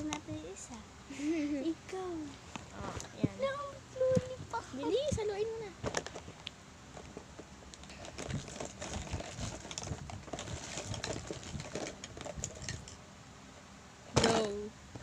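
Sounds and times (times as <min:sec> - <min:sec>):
plastic wrappers crinkling: 0:07.8 - 0:13.0.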